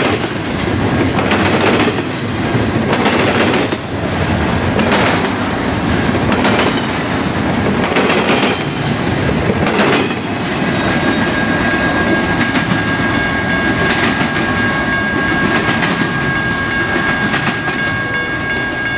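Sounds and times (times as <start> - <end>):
wheels clacking over rail joints: 0.0 - 12.9
freight train rumbling past: 0.0 - 18.9.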